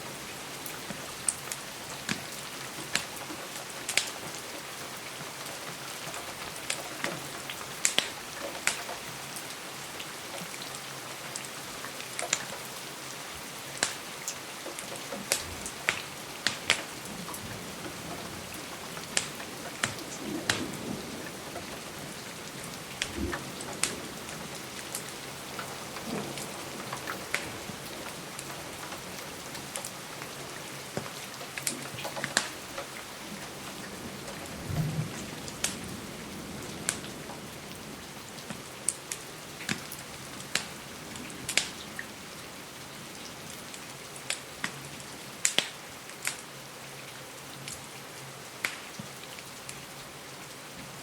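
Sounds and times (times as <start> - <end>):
rain hissing against a window: 0.0 - 51.0
wood fire crackling: 7.8 - 8.9, 14.7 - 37.1, 38.2 - 41.8.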